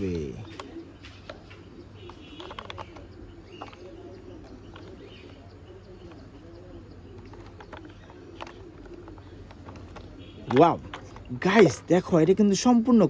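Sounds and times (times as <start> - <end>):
dove cooing: 0.0 - 13.0
plastic toy clicks and taps: 2.0 - 5.4, 7.2 - 11.3.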